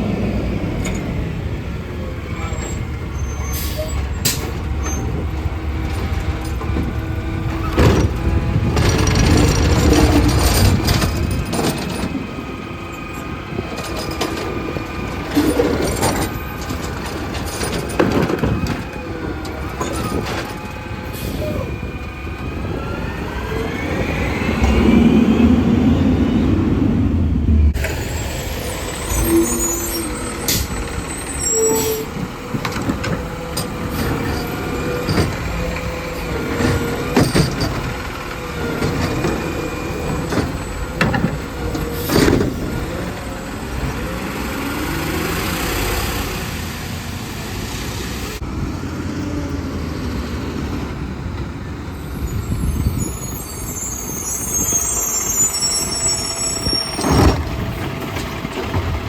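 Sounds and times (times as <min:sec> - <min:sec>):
garbage truck engine running: 0:00.0 - 0:59.0
metal clanks and bangs: 0:04.0 - 0:12.3, 0:13.6 - 0:20.7, 0:31.6 - 0:38.1.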